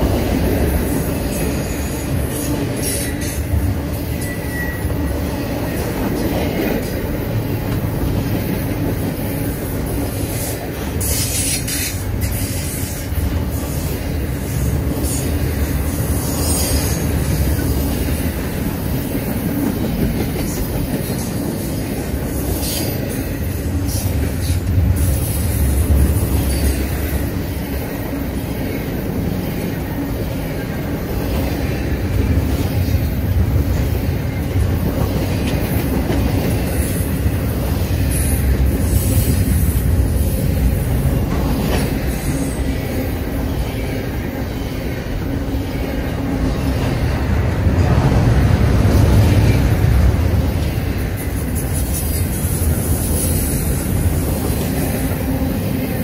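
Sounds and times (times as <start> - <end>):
freight train wheels rumbling: 0.0 - 56.0
high-pitched wheel squeals: 4.1 - 5.2.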